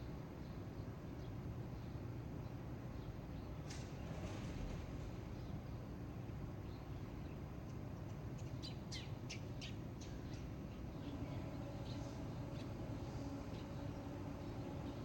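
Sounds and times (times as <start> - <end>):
songbirds chirping: 0.3 - 15.0
low background rumble: 10.0 - 15.0.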